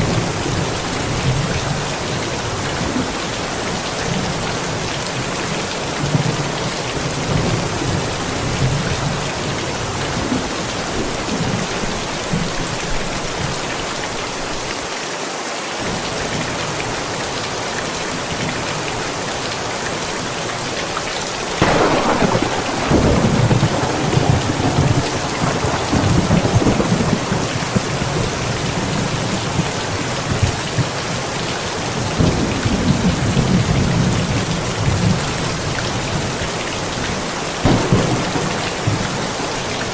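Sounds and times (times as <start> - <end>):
steady rain: 0.0 - 39.9
sharp thunderclap: 21.6 - 29.6, 37.6 - 39.9
thunder rumbling: 21.6 - 31.1, 37.6 - 39.9.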